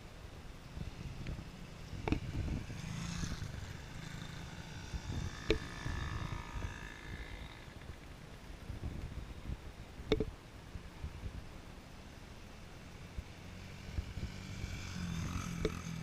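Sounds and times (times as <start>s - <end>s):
motorbike engine whining: 0.8s - 8.2s.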